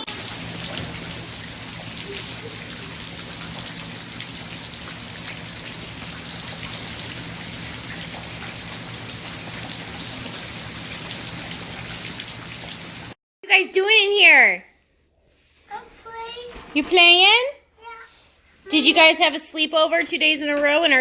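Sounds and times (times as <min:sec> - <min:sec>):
steady rain falling: 0:00.0 - 0:13.2.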